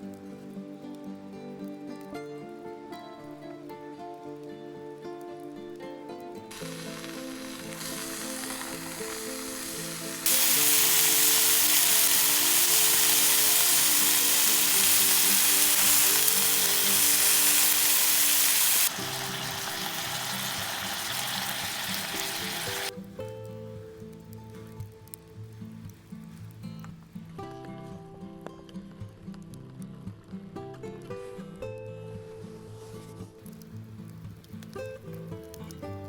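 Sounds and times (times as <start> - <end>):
background music: 0.0 - 36.0
steady hissing noise: 6.5 - 27.4.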